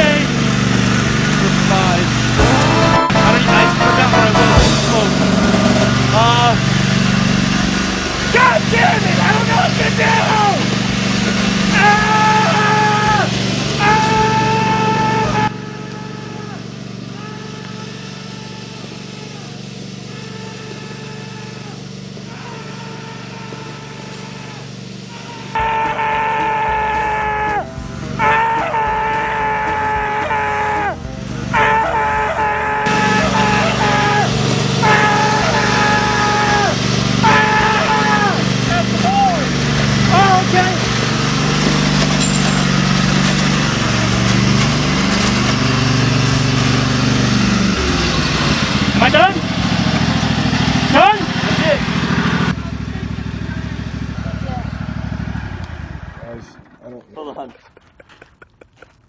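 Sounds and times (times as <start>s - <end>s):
tractor engine running: 0.0s - 56.8s
loud held tone: 1.9s - 25.7s.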